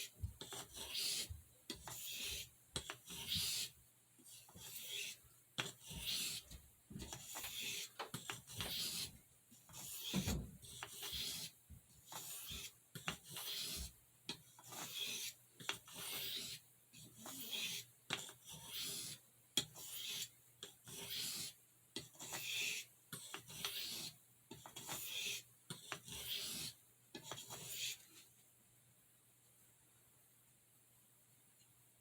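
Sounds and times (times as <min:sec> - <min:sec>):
knife rasping on sharpening stone: 0:00.0 - 0:03.7, 0:04.5 - 0:06.4, 0:07.2 - 0:09.1, 0:10.8 - 0:11.5, 0:12.1 - 0:13.8, 0:14.6 - 0:16.6, 0:17.2 - 0:28.0.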